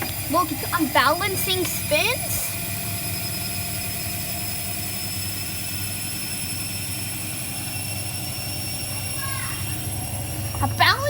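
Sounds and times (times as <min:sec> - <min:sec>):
washing machine drum spinning: 0:00.0 - 0:11.0.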